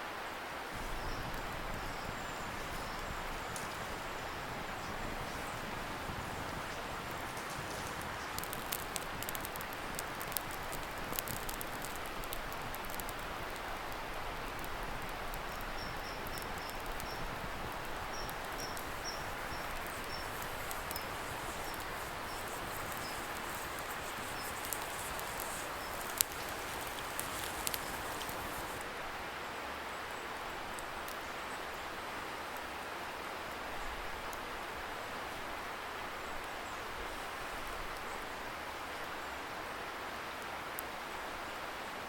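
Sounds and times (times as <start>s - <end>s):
distant river hiss: 0.0s - 30.4s
campfire crackling and popping: 0.8s - 28.8s.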